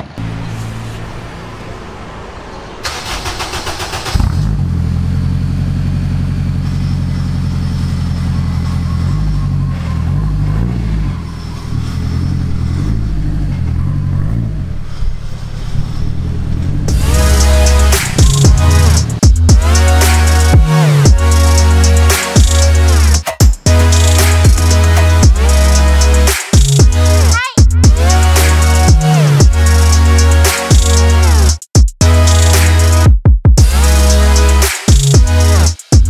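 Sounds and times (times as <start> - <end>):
car engine idling: 0.0 - 31.5
engine starter cranking: 2.8 - 4.6.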